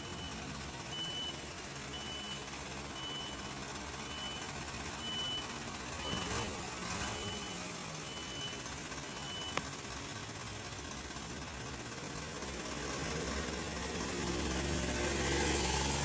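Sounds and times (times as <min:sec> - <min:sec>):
reversing alarm beeping: 0:00.0 - 0:09.6
diesel engine running: 0:00.0 - 0:16.0.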